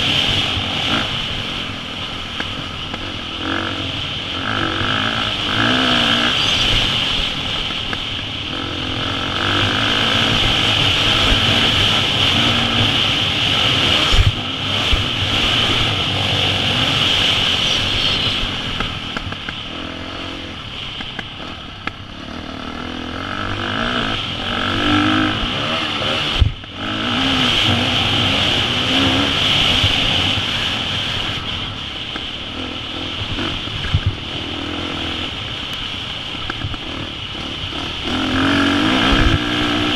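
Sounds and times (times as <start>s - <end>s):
motocross engine revving: 0.0s - 1.7s, 2.4s - 31.6s, 32.2s - 39.9s.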